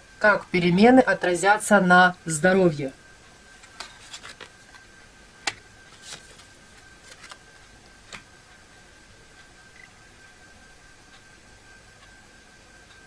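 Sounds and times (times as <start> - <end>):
faint high-pitched whine: 0.0 - 13.0
cards clicking and tapping: 3.7 - 4.8, 5.4 - 6.5.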